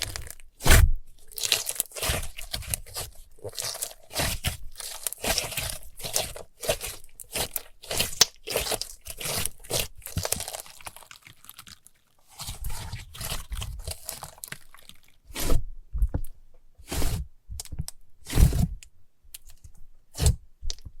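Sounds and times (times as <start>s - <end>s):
slime popping and crackling: 0.0s - 15.2s.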